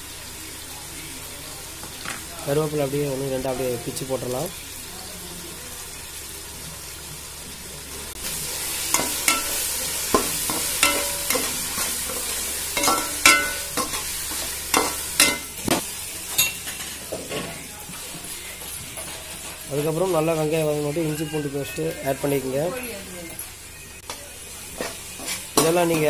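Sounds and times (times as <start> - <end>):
vegetables sizzling in hot oil: 0.0 - 26.0
spatula scraping a metal pan: 24.8 - 26.0.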